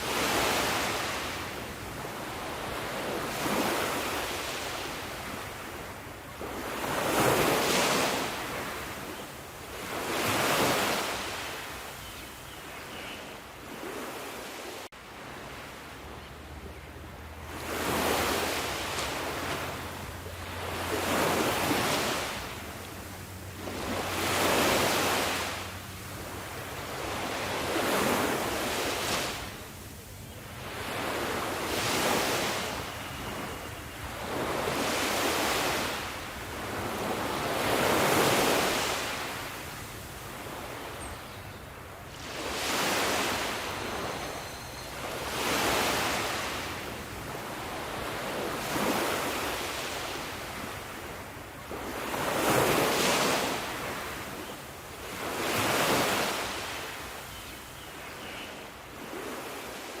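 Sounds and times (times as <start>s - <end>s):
sea waves washing in: 0.0s - 11.9s, 17.2s - 57.2s.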